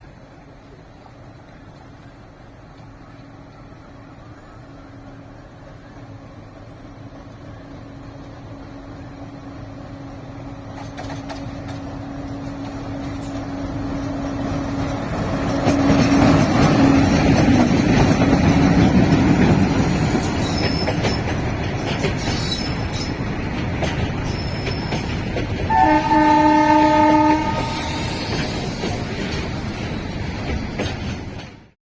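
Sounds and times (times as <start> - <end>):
diesel locomotive engine: 0.0 - 31.8
wagons clattering over rail joints: 10.7 - 31.7
train horn blast: 25.7 - 28.4.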